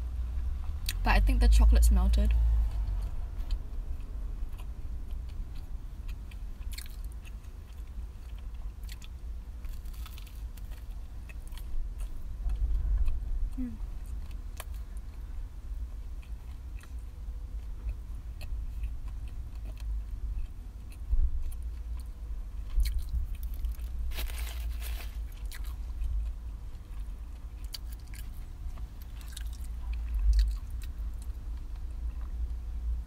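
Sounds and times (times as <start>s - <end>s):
low rumble: 0.0s - 18.9s
person chewing food: 2.6s - 15.3s, 16.0s - 32.6s.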